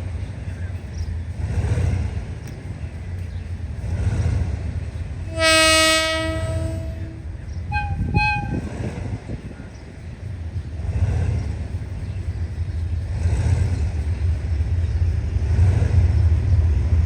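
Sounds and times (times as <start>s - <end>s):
steady low rumble: 0.0s - 17.0s
train horn long blast: 5.2s - 9.0s
higher-pitched horn short toots: 5.3s - 8.7s.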